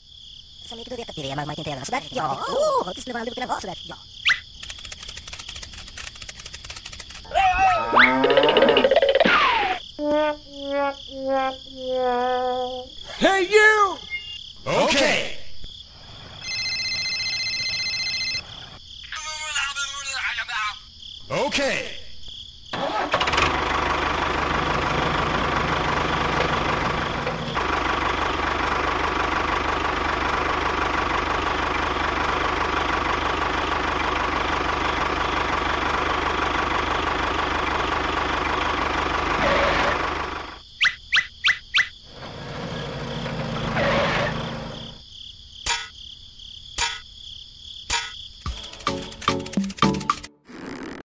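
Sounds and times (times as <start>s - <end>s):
sharp clicks and ticks: 4.5s - 7.3s
small motor running: 4.6s - 7.3s.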